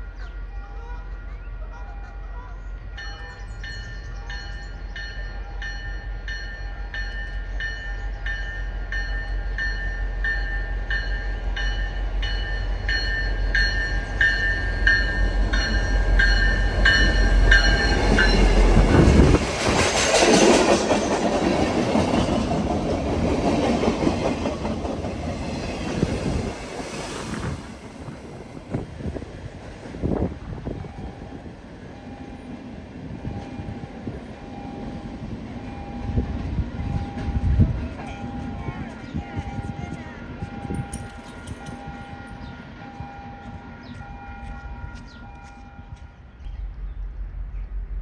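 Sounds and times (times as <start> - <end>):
diesel locomotive rumble: 0.0 - 41.6
locomotive bell ringing: 2.9 - 19.3, 33.2 - 46.0
train wheels on rails: 2.9 - 48.0.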